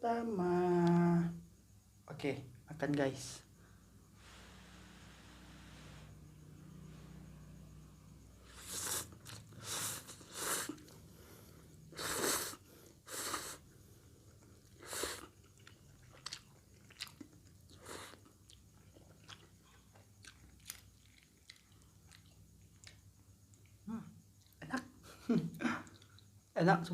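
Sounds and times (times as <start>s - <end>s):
noisy eating mouth sounds: 8.5s - 11.0s, 14.2s - 23.8s
chewing clicks: 15.3s - 23.8s.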